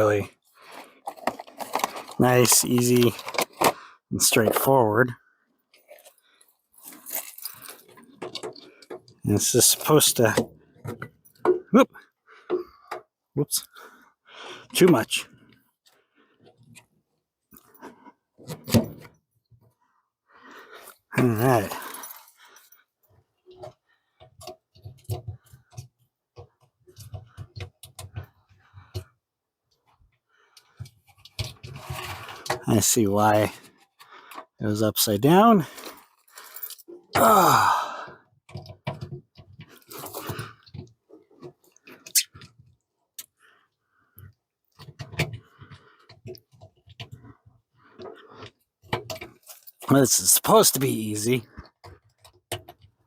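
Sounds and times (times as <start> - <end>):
crackling handling noise: 0.0 - 11.4
small clicks and knocks: 51.4 - 53.0.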